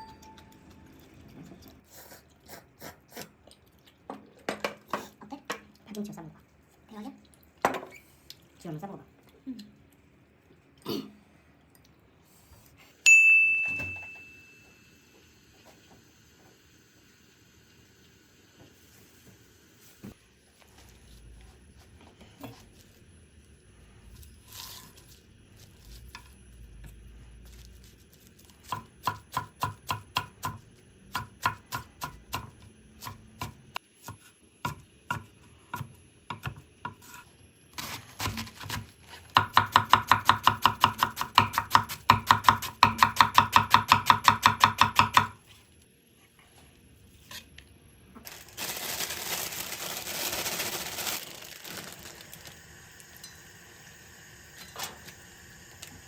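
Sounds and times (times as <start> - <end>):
knife chopping on cutting board: 38.2 - 45.4.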